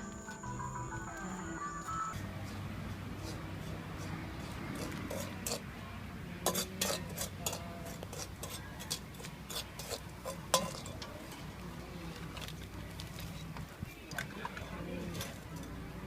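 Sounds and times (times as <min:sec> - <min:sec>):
cups and cutlery clinking: 0:06.4 - 0:11.0.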